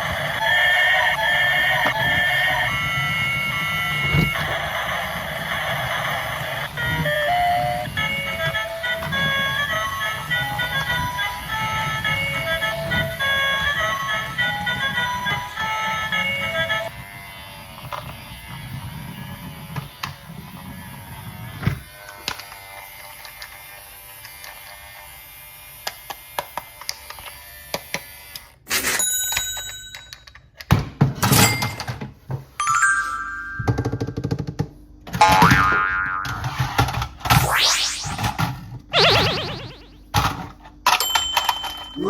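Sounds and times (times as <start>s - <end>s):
plastic toys clicking and knocking: 28.7s - 32.1s, 33.7s - 38.8s, 40.1s - 42.0s
electronic tone sound effects: 37.4s - 40.1s
short electronic tune: 39.0s - 40.0s.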